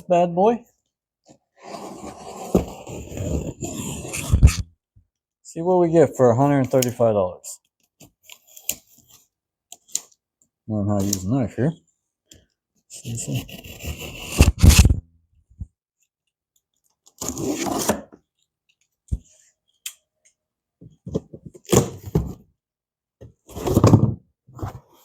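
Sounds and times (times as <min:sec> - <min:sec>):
knife cutting cardboard box: 0:01.6 - 0:04.7, 0:13.1 - 0:15.0, 0:17.1 - 0:18.2.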